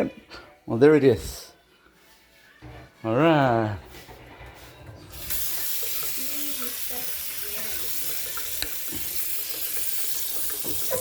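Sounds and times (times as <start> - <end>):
faucet running into a sink: 5.1 - 11.0.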